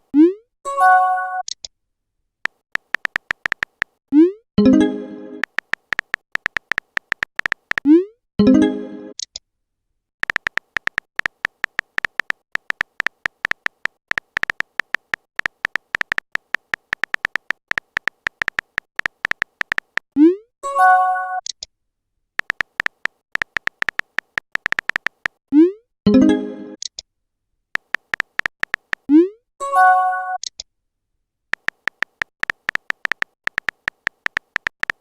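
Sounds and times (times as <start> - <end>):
rapid typing clicks: 2.5 - 4.0, 5.4 - 7.9, 10.2 - 20.1, 22.4 - 25.4, 27.8 - 29.1, 31.5 - 35.0.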